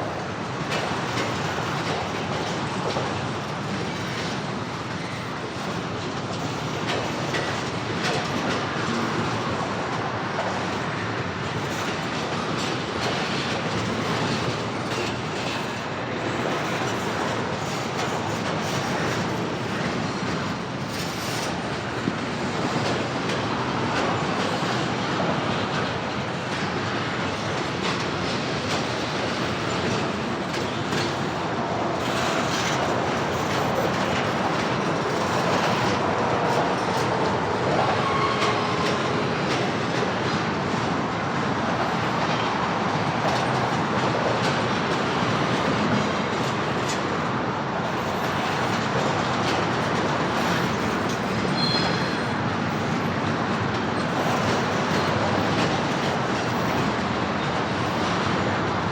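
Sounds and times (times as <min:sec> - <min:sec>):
train cars clattering over rails: 0:00.0 - 0:58.9
faint wheel squeal: 0:37.9 - 0:39.0, 0:50.4 - 0:53.0.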